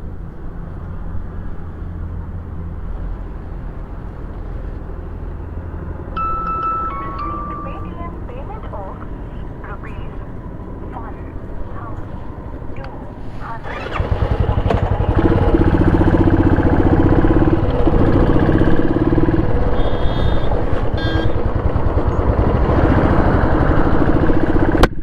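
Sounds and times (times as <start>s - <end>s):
short high beeps: 6.2s - 9.4s
motorcycle engine starting and running: 12.9s - 25.0s.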